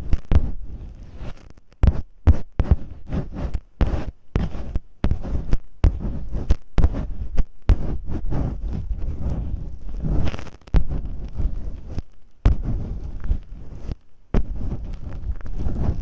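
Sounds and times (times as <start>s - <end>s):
masking tape scratching microphone: 0.0s - 16.0s
low thuds: 1.8s - 13.5s.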